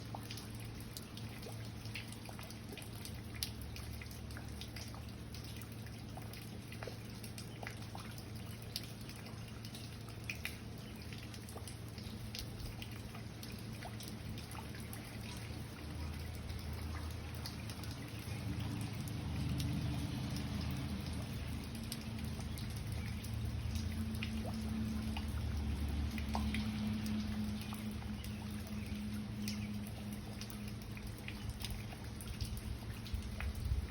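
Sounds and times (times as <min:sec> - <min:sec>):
water drops plinking: 0:00.1 - 0:33.7
low hum: 0:09.6 - 0:33.8
rain hiss: 0:15.0 - 0:33.9.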